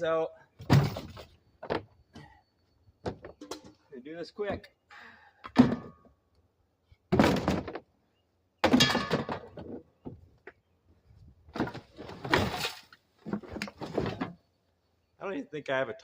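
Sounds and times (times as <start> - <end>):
thunking and clattering: 0.6 - 2.3, 5.5 - 6.1, 7.1 - 7.9, 8.6 - 10.2, 11.5 - 14.4.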